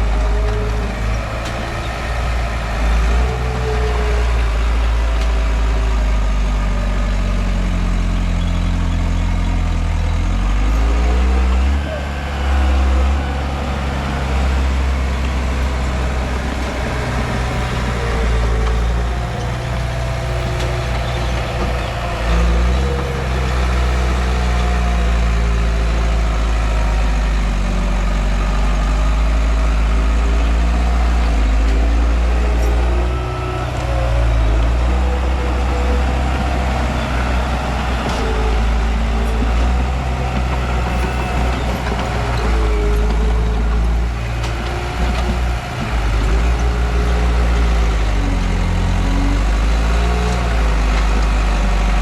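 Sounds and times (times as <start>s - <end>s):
bulldozer diesel engine running: 0.0s - 52.0s.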